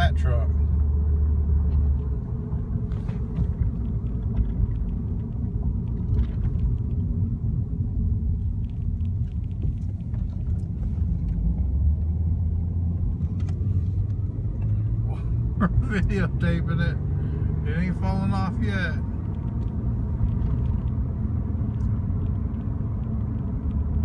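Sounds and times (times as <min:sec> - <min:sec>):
road and engine rumble in car: 0:00.0 - 0:24.0.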